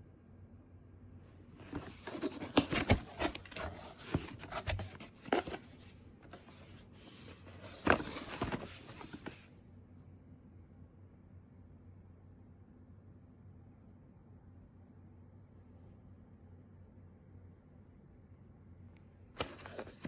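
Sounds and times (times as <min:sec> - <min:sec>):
objects rustling and rubbing: 0:01.6 - 0:09.5, 0:19.4 - 0:20.0.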